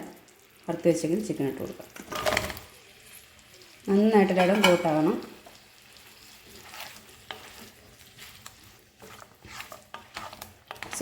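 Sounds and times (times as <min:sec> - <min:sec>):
sauce sizzling in a pan: 0:00.0 - 0:11.0
spoon scraping and tapping a pan: 0:04.3 - 0:05.6, 0:06.5 - 0:11.0.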